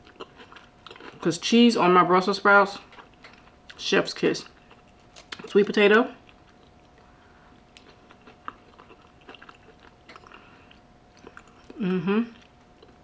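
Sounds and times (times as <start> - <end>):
person chewing: 0.0 - 1.4, 2.8 - 3.8, 4.4 - 5.6, 6.2 - 13.0
short vocal sound: 11.8 - 12.4.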